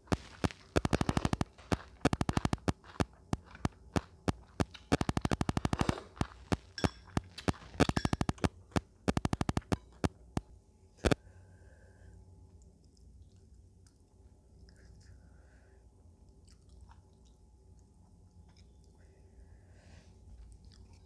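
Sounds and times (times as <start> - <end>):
crisp eating crunches: 0.0 - 11.2.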